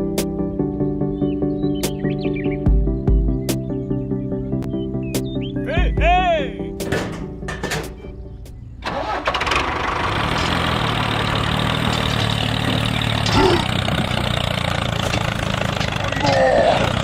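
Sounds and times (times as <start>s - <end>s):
small engine starting and idling: 8.8s - 17.0s.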